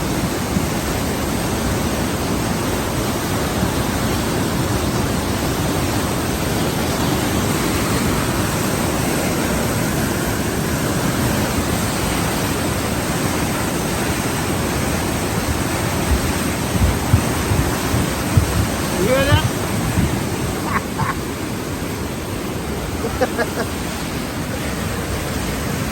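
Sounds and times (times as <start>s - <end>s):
steady rushing noise: 0.0s - 25.9s
low buffets: 15.3s - 21.2s.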